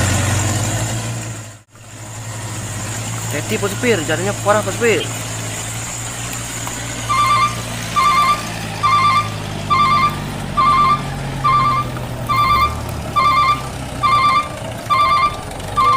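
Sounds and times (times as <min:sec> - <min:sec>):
low engine hum: 0:00.0 - 0:15.9
truck reversing alarm beeping: 0:03.4 - 0:15.9.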